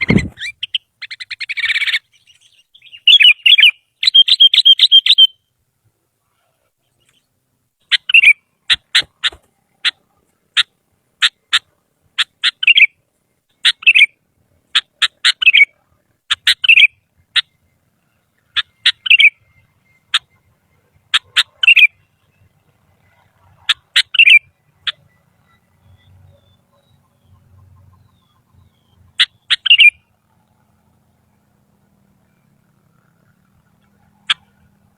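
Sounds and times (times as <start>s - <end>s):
bird singing: 0.0s - 5.6s, 6.4s - 34.9s.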